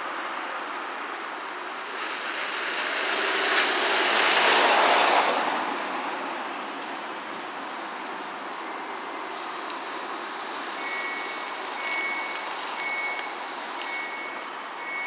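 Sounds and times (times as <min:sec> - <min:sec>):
freight train passing: 0:02.0 - 0:06.3.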